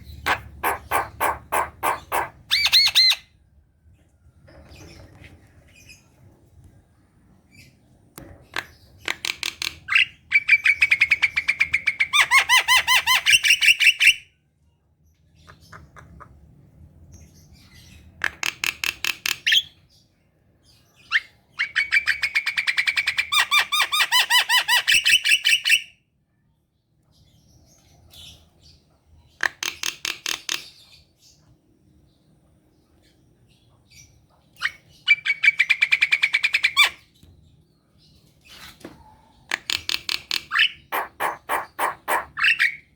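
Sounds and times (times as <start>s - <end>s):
myna bird singing: 0.0s - 3.4s, 26.8s - 42.9s.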